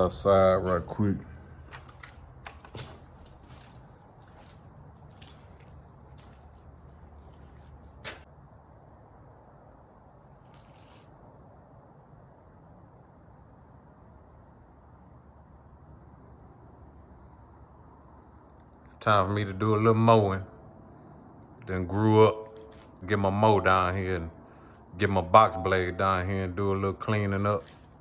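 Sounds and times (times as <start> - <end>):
insects trilling: 10.0 - 28.0.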